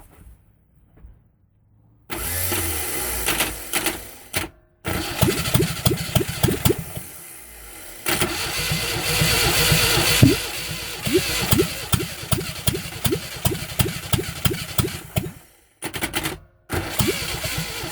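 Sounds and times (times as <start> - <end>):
engine running unevenly: 5.4 - 15.7.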